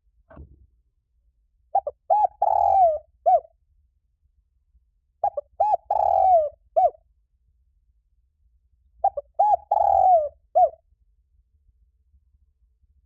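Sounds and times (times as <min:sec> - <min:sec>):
dove cooing: 0:01.8 - 0:03.5, 0:05.2 - 0:07.0, 0:09.0 - 0:10.8.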